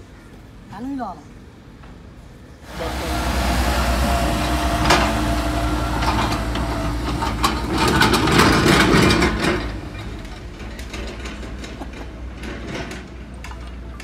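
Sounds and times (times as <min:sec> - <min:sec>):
heavy machinery humming: 0:02.6 - 0:12.9
metallic knocks and clatter: 0:06.0 - 0:13.8.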